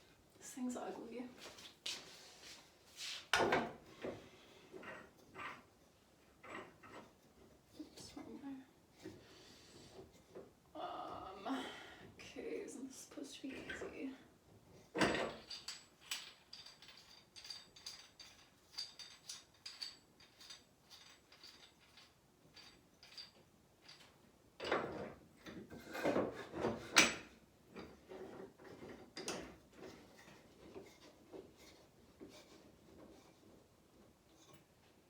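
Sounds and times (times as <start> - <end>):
knocks and scrapes: 24.0 - 35.0.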